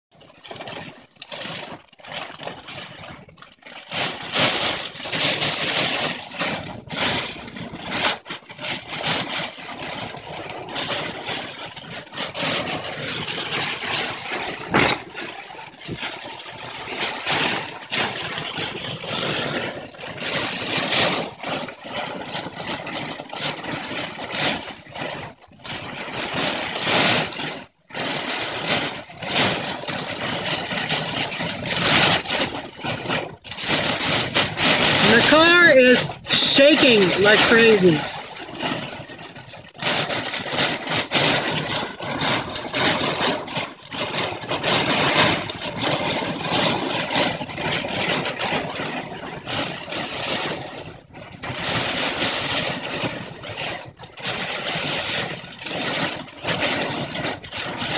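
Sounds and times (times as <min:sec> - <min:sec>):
storm wind buffeting a car: 0:00.5 - 0:14.7, 0:38.0 - 0:57.9.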